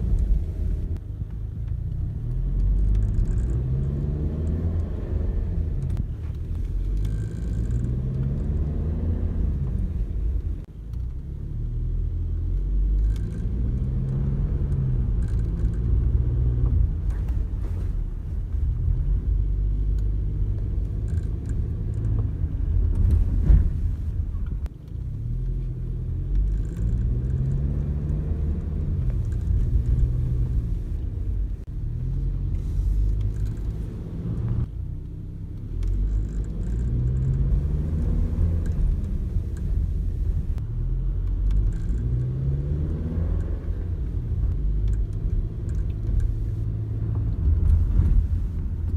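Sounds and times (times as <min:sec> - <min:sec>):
road and engine rumble: 0:00.0 - 0:48.9
faint light ticks: 0:44.5 - 0:47.8.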